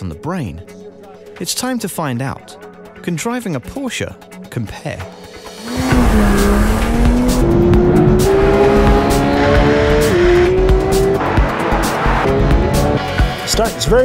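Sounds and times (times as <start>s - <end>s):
car engine accelerating hard: 5.6s - 13.4s.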